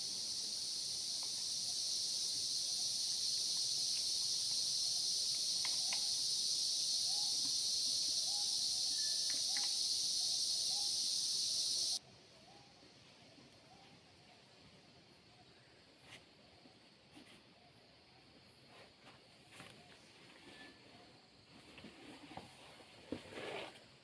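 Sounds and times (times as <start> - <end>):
insects shrilling: 0.0 - 12.0.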